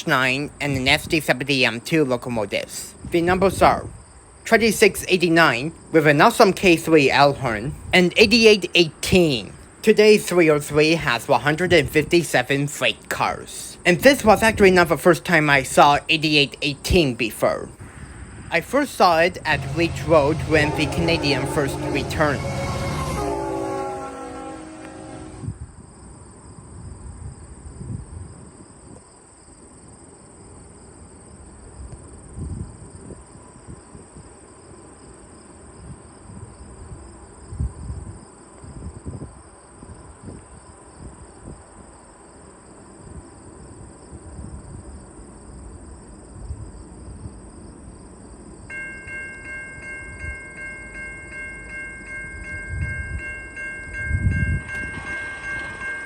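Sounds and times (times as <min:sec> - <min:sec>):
faint train and rail noise: 0:00.0 - 0:27.6, 0:32.8 - 0:56.0
wind rumble on microphone: 0:03.0 - 0:04.2, 0:26.7 - 0:29.0, 0:52.4 - 0:56.0
level-crossing warning bell ringing: 0:18.6 - 0:25.5, 0:48.7 - 0:56.0.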